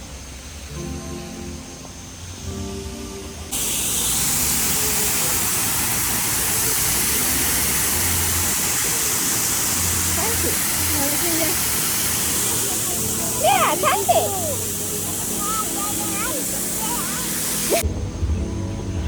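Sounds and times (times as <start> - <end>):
background music: 0.6 - 19.0
falling water rushing: 3.5 - 17.8.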